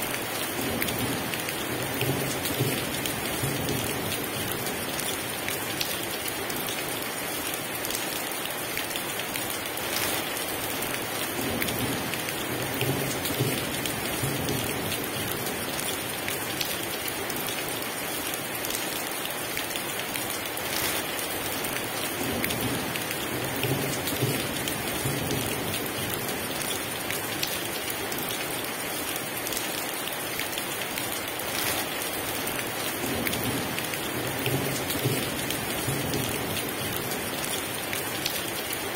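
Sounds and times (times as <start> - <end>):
heavy rain falling: 0.0 - 38.9
raindrops pattering on surface: 0.0 - 38.9.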